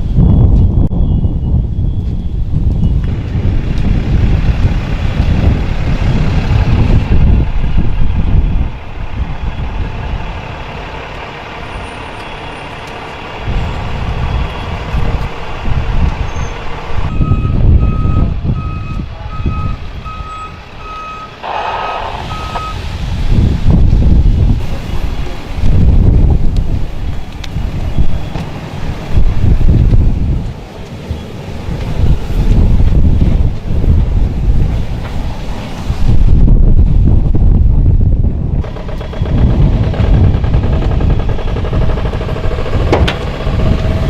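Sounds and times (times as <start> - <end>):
wind buffeting microphone: 0.0 - 44.0
vehicle reversing alarm beeps: 0.2 - 3.1, 7.8 - 10.2, 11.6 - 22.8, 27.1 - 28.5.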